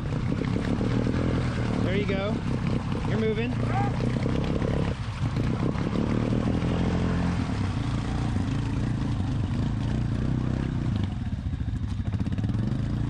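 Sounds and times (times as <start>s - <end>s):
clatter: 0.0s - 7.0s
atv engine running: 0.0s - 13.0s.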